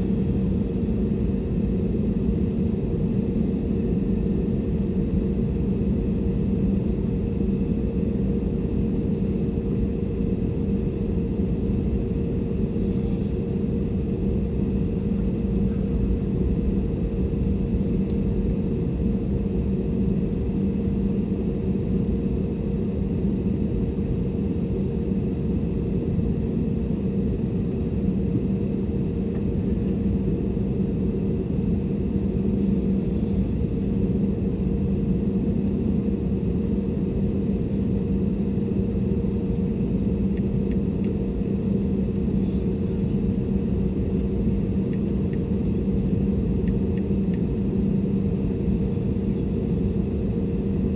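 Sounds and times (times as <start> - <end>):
airliner cabin drone: 0.0 - 50.9.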